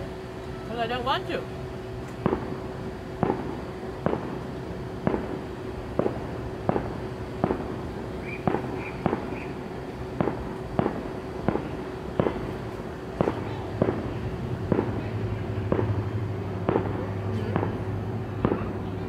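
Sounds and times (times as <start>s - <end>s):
faint steady hum: 0.0s - 19.0s
fireworks bangs: 2.2s - 19.0s.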